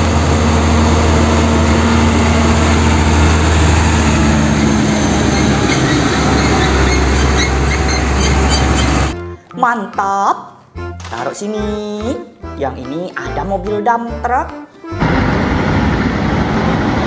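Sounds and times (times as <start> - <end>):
truck engine humming: 0.0 - 9.3, 14.8 - 17.0.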